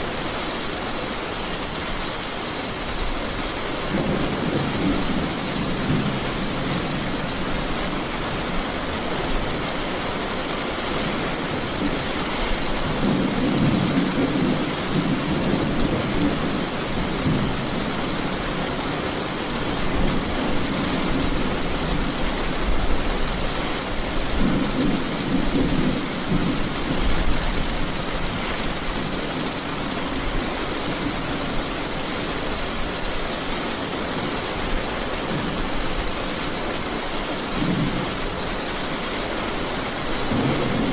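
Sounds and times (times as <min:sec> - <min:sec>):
steady rain: 0:00.0 - 0:40.9
low thunder rumbling: 0:03.9 - 0:08.6, 0:12.6 - 0:18.7.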